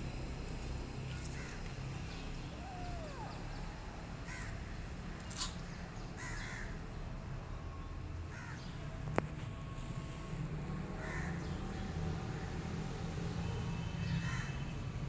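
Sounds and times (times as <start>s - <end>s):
harsh bird calls: 1.1s - 4.6s.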